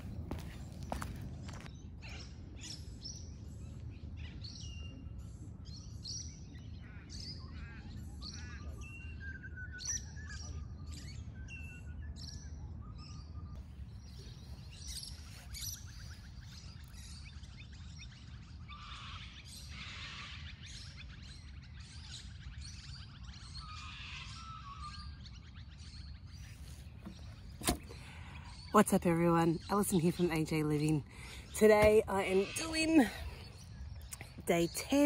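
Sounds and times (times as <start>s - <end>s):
steady low rumble: 0.0s - 4.3s
birds chirping and whistling: 0.0s - 35.0s.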